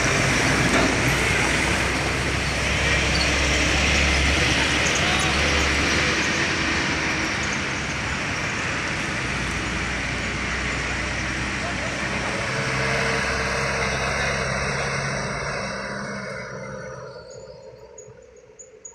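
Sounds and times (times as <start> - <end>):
road hiss: 0.0 - 16.8
truck engine rumbling: 0.0 - 18.9.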